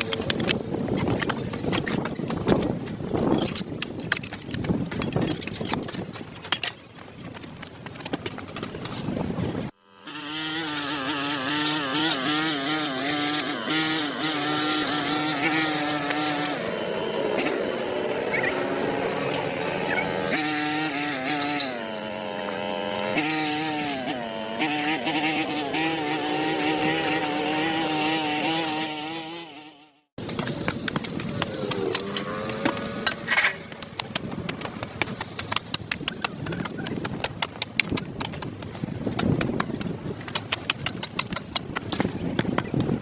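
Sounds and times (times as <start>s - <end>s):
small engine running: 9.7s - 39.8s.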